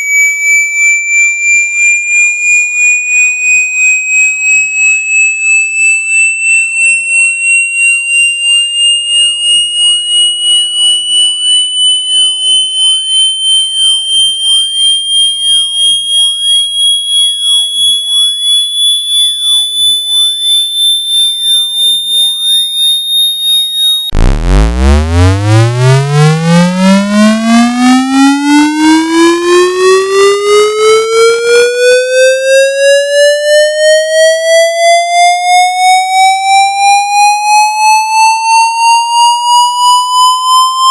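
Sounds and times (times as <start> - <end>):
low buzzy sweeping tone: 24.1 - 26.8
high pulsing rising tone: 24.1 - 29.9.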